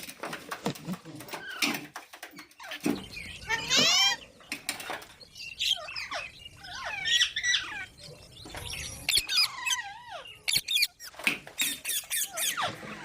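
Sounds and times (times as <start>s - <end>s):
parrot squawking and chirping: 2.4s - 4.4s, 5.3s - 13.0s.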